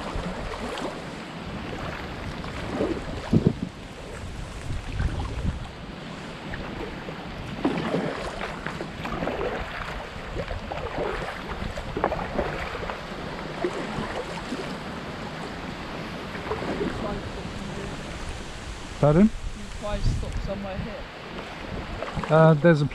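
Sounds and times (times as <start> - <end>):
kayak paddle splashing in water: 0.0 - 20.6, 21.2 - 22.5
wind on microphone: 0.0 - 22.9.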